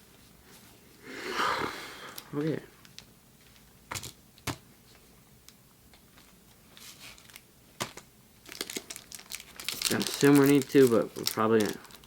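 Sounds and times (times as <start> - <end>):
soft rustle of cards: 6.0 - 12.0
foil wrapper crinkling: 6.1 - 12.0.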